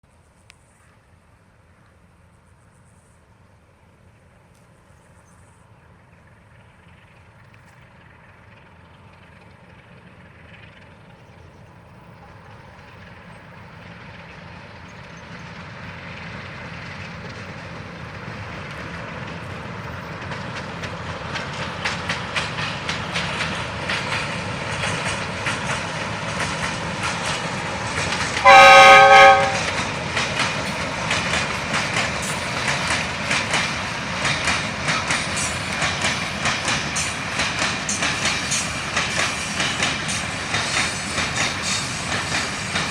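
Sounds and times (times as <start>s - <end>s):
freight train passing: 0.2s - 42.9s
wheels clattering over rail joints: 10.5s - 42.9s
locomotive horn blast: 28.4s - 29.8s.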